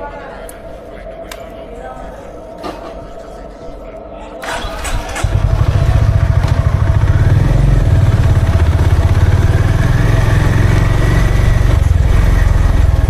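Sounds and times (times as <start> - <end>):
motorcycle engine idling: 4.5 - 13.0.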